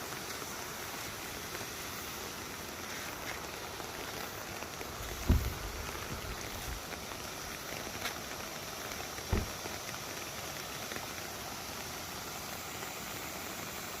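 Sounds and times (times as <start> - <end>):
flowing stream: 0.0 - 14.0
low thumps: 5.2 - 6.1, 9.3 - 9.6.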